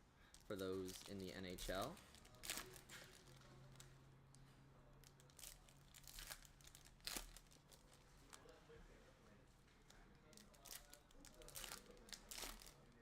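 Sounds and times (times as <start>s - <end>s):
card packs crinkling: 0.5s - 3.9s, 5.1s - 8.1s, 10.4s - 12.8s.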